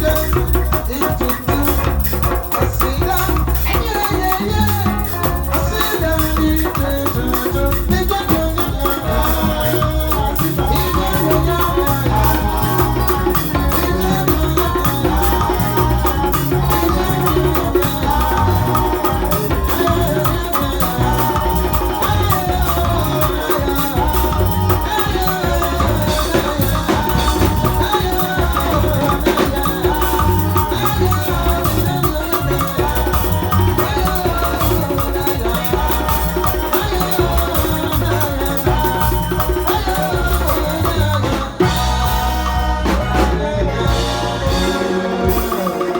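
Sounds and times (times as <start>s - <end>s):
shaker rattle: 0.0s - 41.2s
melody line: 0.0s - 45.9s
steady drum beat: 0.0s - 45.9s.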